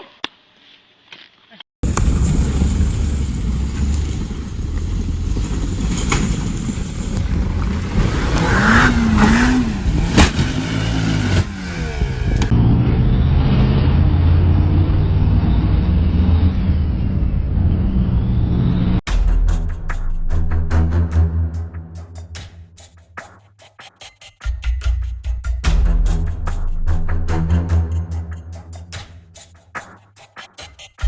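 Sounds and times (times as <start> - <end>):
car engine: 1.8 - 19.0
road noise: 1.8 - 19.1.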